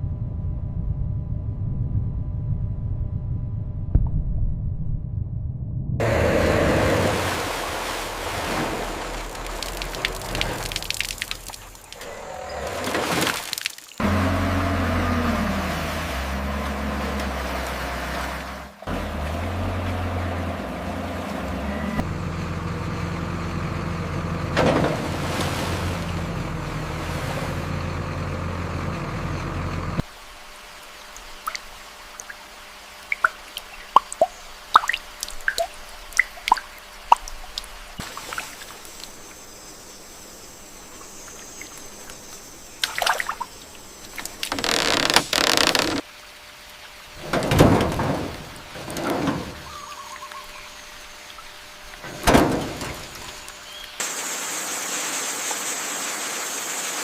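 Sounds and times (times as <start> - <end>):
loud machinery rumble: 0.0 - 9.4, 14.0 - 30.1, 47.2 - 49.8, 51.8 - 53.6
water splashing: 6.0 - 22.1, 24.6 - 27.8, 30.0 - 57.0
water dripping and trickling: 6.8 - 21.5, 30.0 - 57.0.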